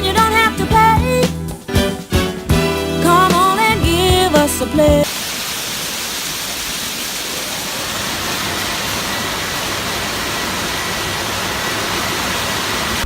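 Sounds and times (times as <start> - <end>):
sung music: 0.0 - 5.0
water spraying from hose: 5.0 - 13.0.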